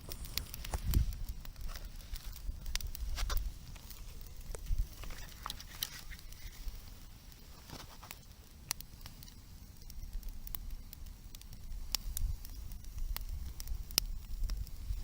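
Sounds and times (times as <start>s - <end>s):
steady low rumble: 0.0s - 7.5s
bonfire crackling and popping: 0.0s - 15.0s.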